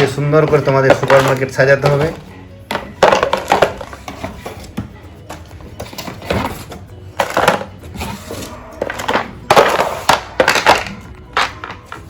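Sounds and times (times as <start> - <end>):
plastic toy pieces clattering: 8.8 - 12.0.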